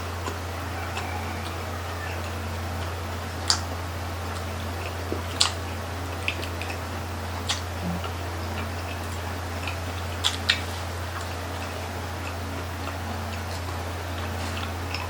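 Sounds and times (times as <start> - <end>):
steady low hum: 0.0 - 15.0
wet mouth smacks chewing: 4.3 - 5.6, 7.4 - 15.0.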